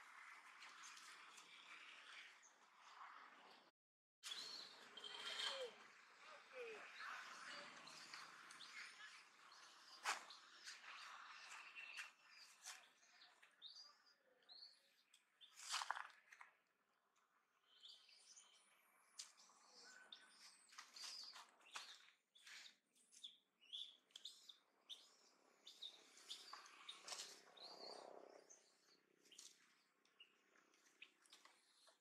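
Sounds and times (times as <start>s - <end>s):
faint birdsong chirps: 4.2s - 32.0s.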